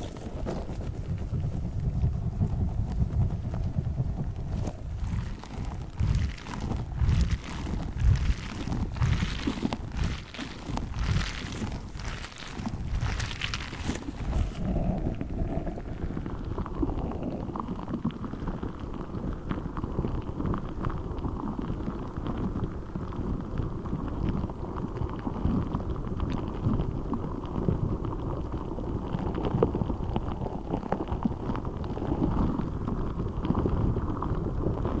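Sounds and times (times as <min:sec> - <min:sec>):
rubber ball squishing: 0:04.4 - 0:15.8.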